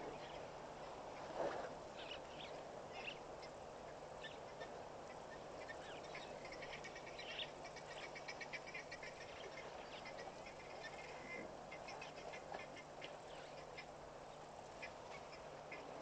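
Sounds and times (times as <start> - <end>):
birds calling: 2.0 - 16.0.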